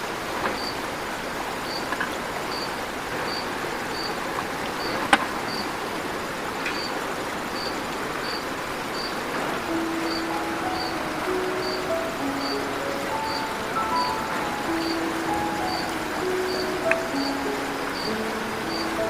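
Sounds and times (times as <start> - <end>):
river flowing: 0.0 - 19.0
high insect chirp: 0.6 - 0.8, 2.5 - 4.2, 4.8 - 5.7, 6.7 - 19.0.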